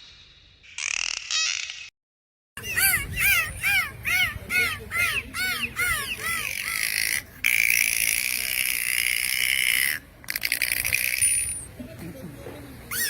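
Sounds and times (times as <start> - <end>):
dolphin whistling: 2.6 - 10.0.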